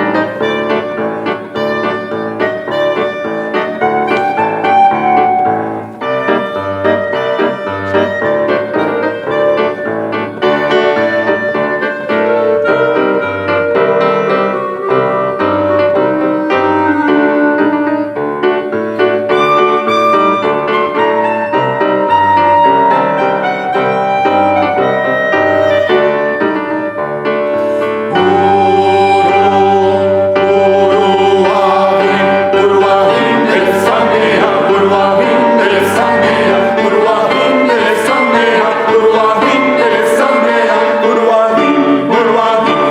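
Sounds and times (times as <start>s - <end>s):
piano playing: 0.0s - 42.9s
vocal ensemble singing: 0.0s - 42.9s.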